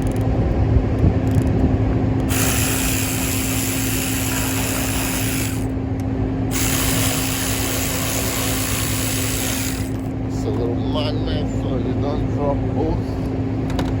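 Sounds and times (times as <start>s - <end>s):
steady low hum: 0.0s - 14.0s
power ratchet running: 2.3s - 5.8s, 6.5s - 10.1s.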